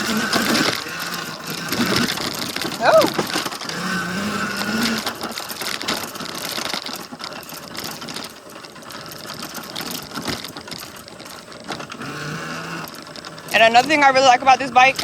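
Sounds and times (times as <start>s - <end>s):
dirt bike rattling and clattering: 0.0s - 15.0s.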